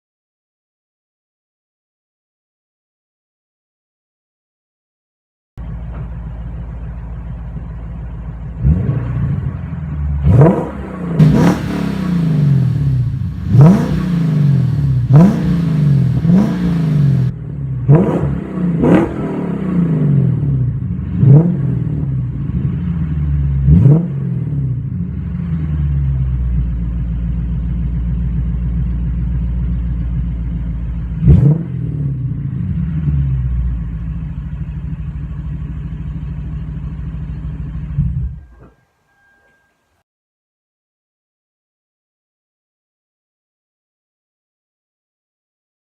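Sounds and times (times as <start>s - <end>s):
car engine revving: 5.6s - 38.7s.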